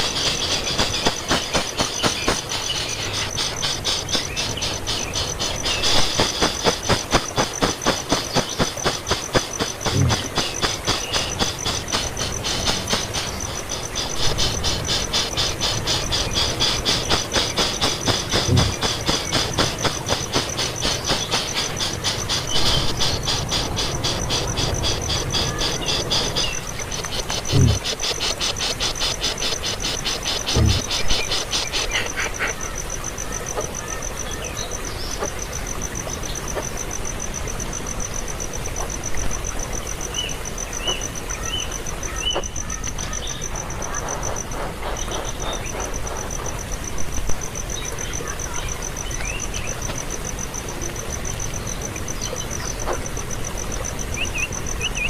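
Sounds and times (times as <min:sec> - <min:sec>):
fast pulsing insect buzz: 0:00.0 - 0:32.6
insects trilling: 0:00.0 - 0:55.0.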